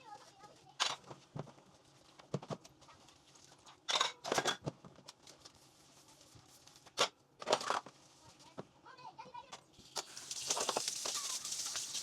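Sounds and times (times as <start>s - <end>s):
household items clattering: 10.0s - 12.0s.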